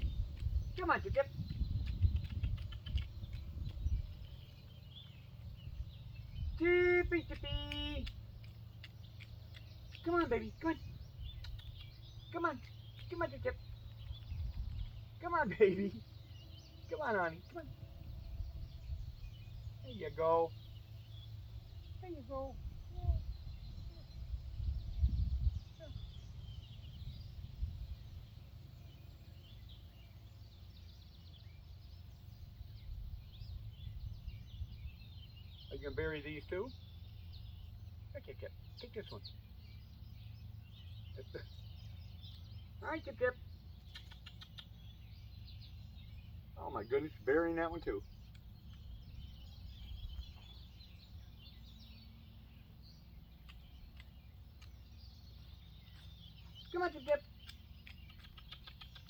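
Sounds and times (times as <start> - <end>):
steady low rumble: 0.0 - 35.8
distant birds chirping: 0.0 - 59.0.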